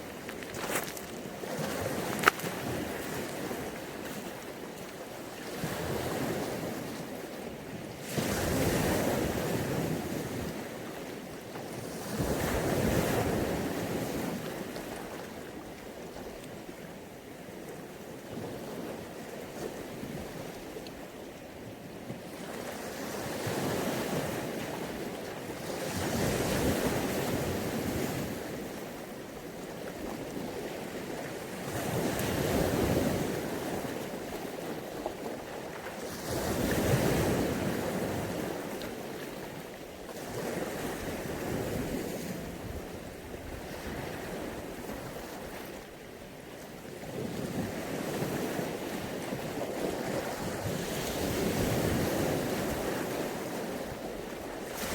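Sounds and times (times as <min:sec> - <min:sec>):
sea waves washing onto beach: 0:00.0 - 0:17.0, 0:17.6 - 0:54.9.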